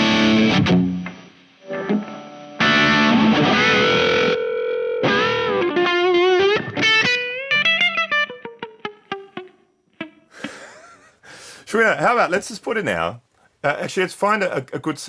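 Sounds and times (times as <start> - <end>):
distorted electric guitar: 0.0 - 10.3.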